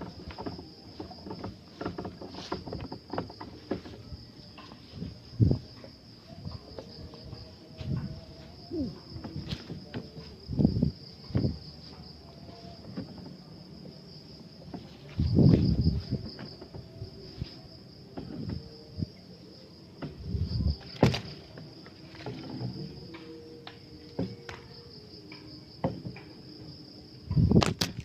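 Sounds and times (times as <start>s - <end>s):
low rumbling bumps: 0.0s - 19.2s, 20.0s - 23.1s
insects droning: 0.0s - 28.0s.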